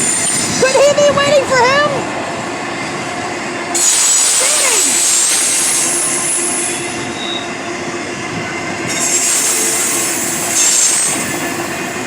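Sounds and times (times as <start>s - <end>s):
train rumbling on rails: 0.0s - 12.0s
wheel squeal: 3.8s - 7.6s, 8.9s - 11.9s.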